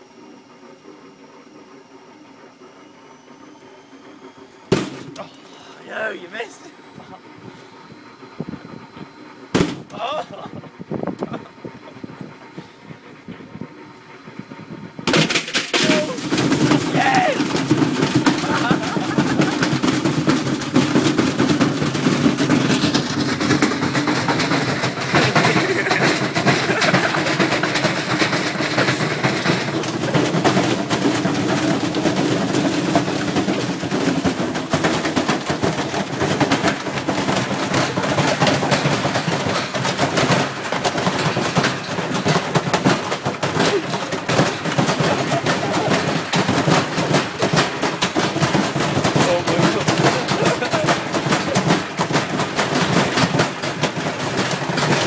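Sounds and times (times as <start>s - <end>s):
washing machine motor humming: 0.0s - 55.0s
battery banging and rattling in drum: 4.7s - 6.6s, 9.5s - 11.5s, 15.0s - 55.0s.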